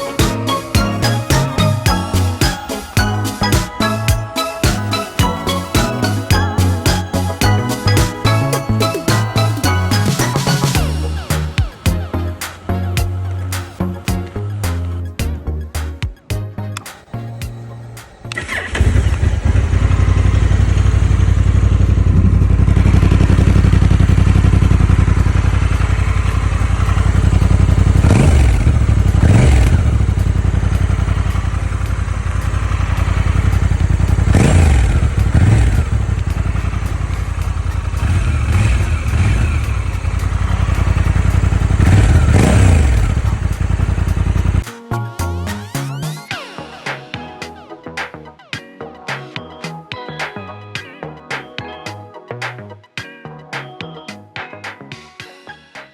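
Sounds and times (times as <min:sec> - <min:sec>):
motorcycle engine idling and revving: 0:00.0 - 0:16.5, 0:17.4 - 0:44.6.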